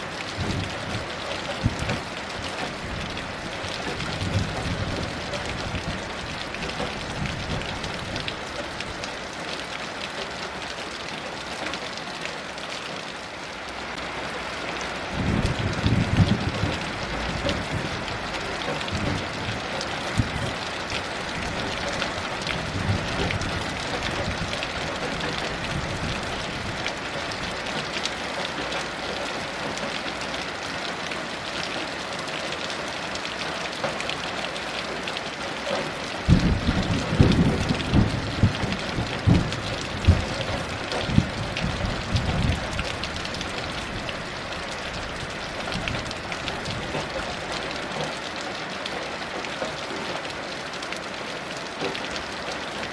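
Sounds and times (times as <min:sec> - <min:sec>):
heavy rain falling: 0:00.0 - 0:52.9
thunder rumbling and cracking: 0:00.3 - 0:09.0, 0:15.1 - 0:27.6, 0:36.2 - 0:47.1.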